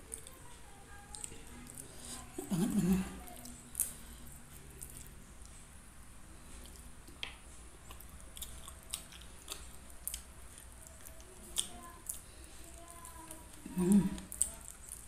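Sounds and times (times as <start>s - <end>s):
chewing and gnawing: 3.2s - 5.2s, 6.6s - 15.0s.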